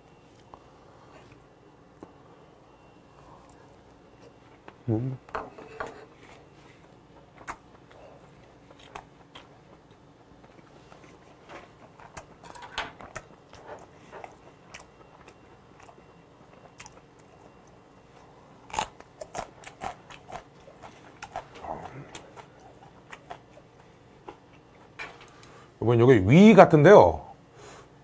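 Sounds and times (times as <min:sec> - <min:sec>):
person chewing: 0:06.2 - 0:25.6.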